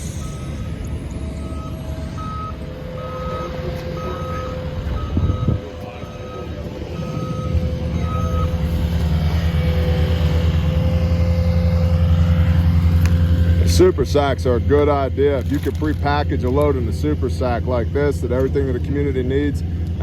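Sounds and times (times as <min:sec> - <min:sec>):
reversing alarm beeps: 0:00.0 - 0:10.1
engine running: 0:00.0 - 0:20.0.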